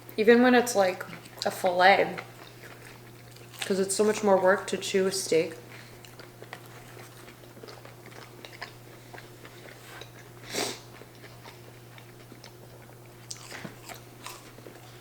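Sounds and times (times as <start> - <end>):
chewing with wet mouth clicks: 1.0 - 4.3, 5.6 - 10.3, 10.9 - 15.0
crunchy bite: 13.3 - 15.0.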